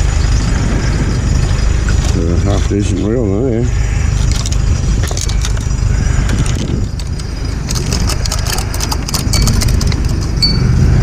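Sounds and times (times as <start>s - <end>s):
low rumble: 0.0s - 11.0s
cord reel clicks and rattles: 4.2s - 10.6s.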